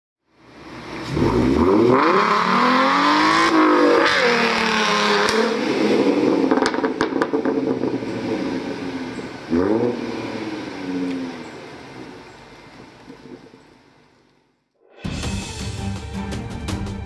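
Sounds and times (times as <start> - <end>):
car engine revving: 0.7 - 12.6.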